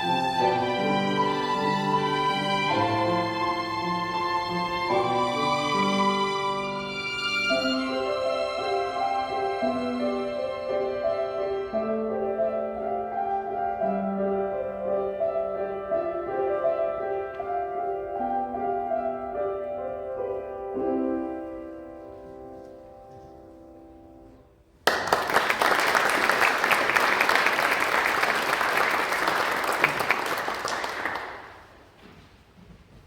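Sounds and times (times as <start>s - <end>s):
violins and piano chords: 0.0s - 24.8s
audience applause: 24.8s - 31.8s.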